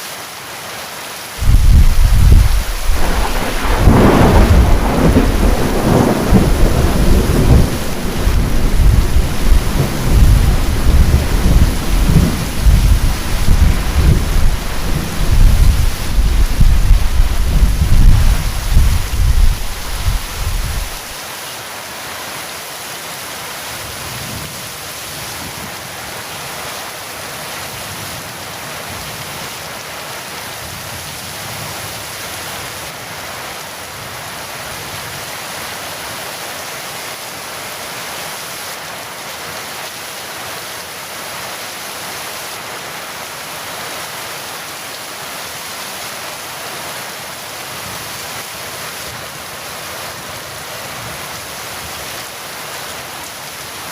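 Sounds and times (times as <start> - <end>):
heavy rain falling: 0.0 - 53.9
thunder rumble: 1.4 - 21.1.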